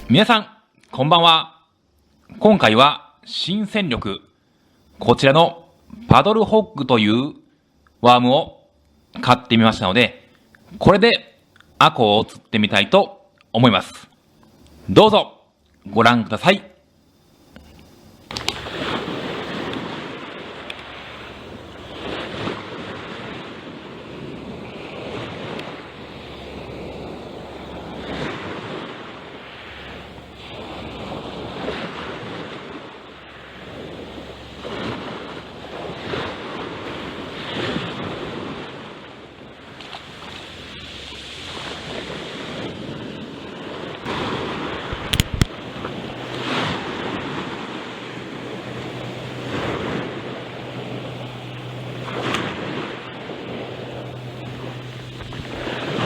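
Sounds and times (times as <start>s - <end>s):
sea waves washing ashore: 0.0s - 0.4s, 18.2s - 56.0s
wind on microphone: 18.3s - 56.0s.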